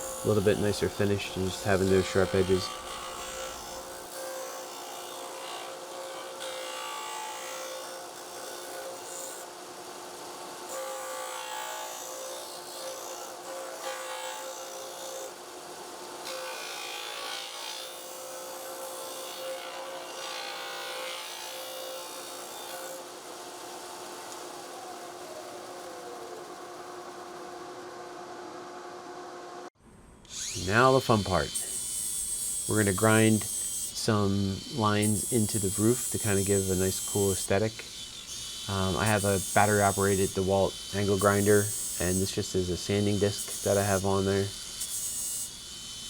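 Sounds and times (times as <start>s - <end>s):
power sander humming: 0.0s - 4.4s, 21.7s - 29.7s, 30.3s - 46.0s
wood rasping on sander: 0.0s - 9.4s, 30.3s - 46.0s.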